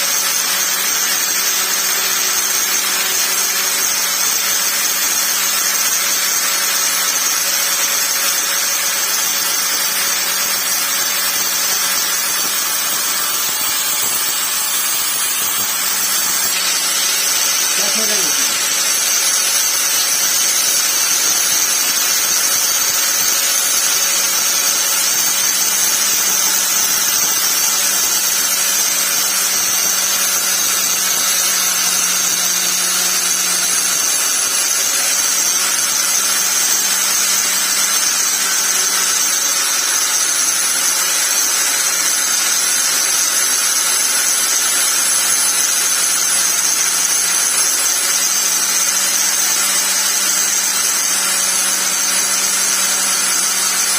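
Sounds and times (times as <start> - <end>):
angle grinder running: 0.0 - 53.9.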